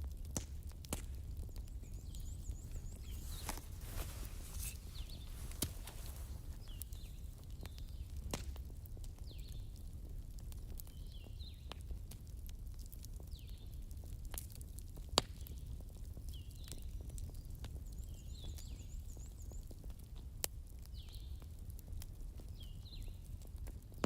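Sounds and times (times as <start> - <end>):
wood fire crackling: 0.0 - 24.0
bird chirping: 1.6 - 7.2.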